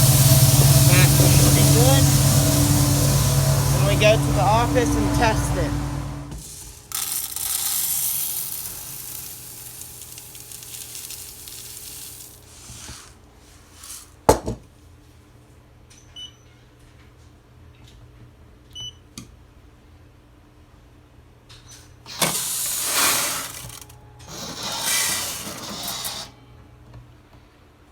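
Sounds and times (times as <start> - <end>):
rushing hiss: 0.0 - 6.4, 22.3 - 23.8.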